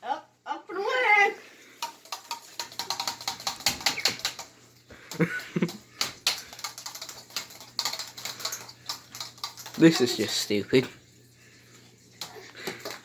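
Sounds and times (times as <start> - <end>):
keyboard keys clicking: 2.1 - 4.5, 5.1 - 10.1.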